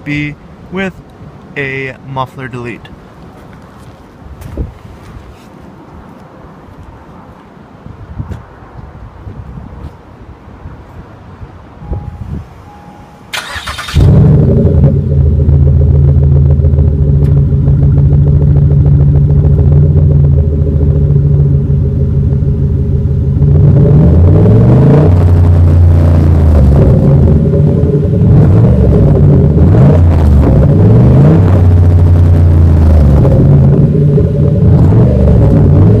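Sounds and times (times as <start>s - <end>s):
loud car engine idling and revving: 11.9s - 36.0s
car starter cranking: 13.3s - 14.5s.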